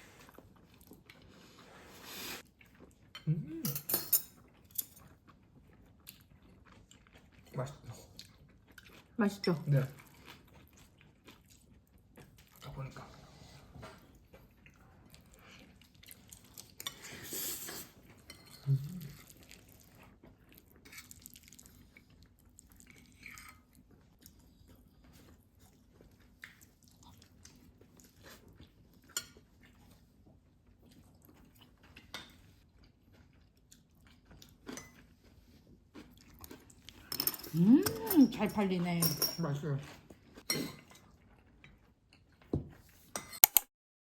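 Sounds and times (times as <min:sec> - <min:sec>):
chewing: 0:00.1 - 0:38.4, 0:39.8 - 0:43.5
cutlery and dishes clinking: 0:03.6 - 0:05.0, 0:16.9 - 0:18.6, 0:37.0 - 0:39.6, 0:40.4 - 0:41.0, 0:43.1 - 0:43.7.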